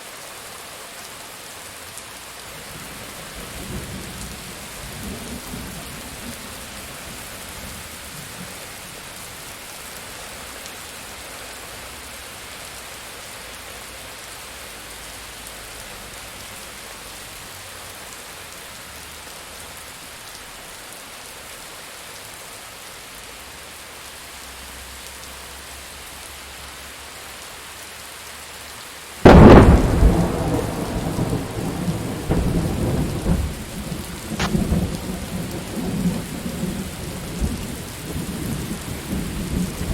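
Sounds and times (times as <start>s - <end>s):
steady rain: 0.0s - 39.9s
thunder rumbling: 29.2s - 39.9s.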